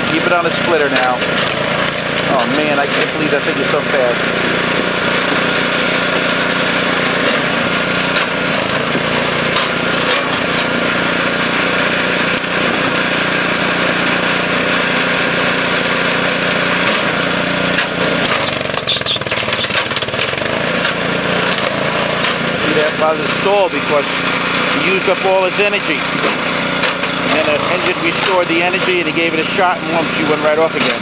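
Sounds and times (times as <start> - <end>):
small gas engine running: 0.0 - 31.0.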